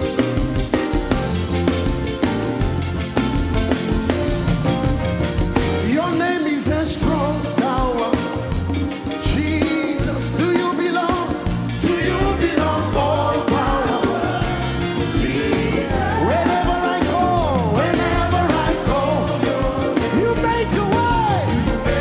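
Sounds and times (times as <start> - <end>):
bass line: 0.0 - 22.0
drum beats: 0.0 - 22.0
gospel singing: 5.7 - 22.0.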